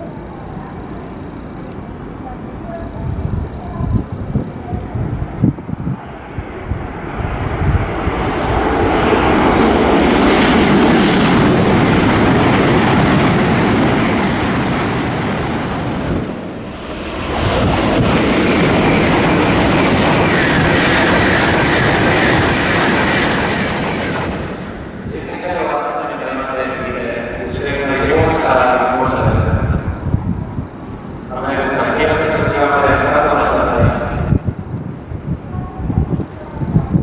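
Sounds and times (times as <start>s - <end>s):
bullet train rushing past: 4.3s - 35.3s
faint high whine: 13.6s - 29.2s.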